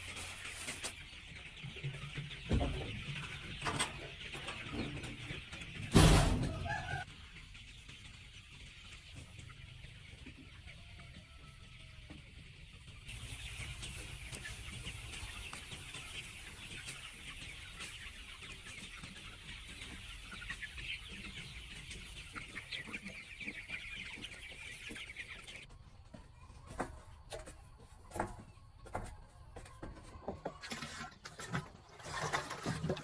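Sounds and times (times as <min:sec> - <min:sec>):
chickens clucking and peeping: 0:00.0 - 0:33.0.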